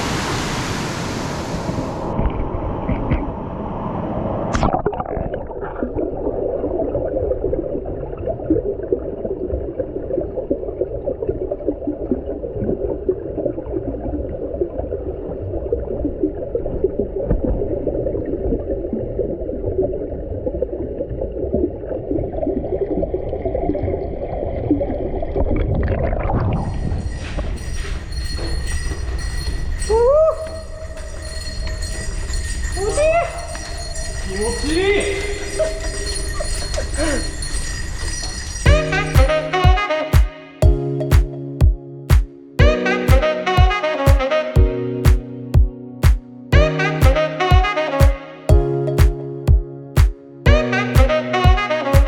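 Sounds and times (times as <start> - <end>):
muffled underwater stream gurgling: 4.6 - 27.0
music: 27.0 - 29.8, 38.6 - 52.0.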